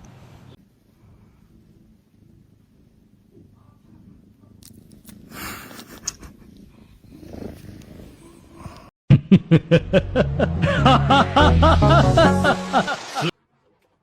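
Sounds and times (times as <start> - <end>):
cat purring: 1.6 - 8.9.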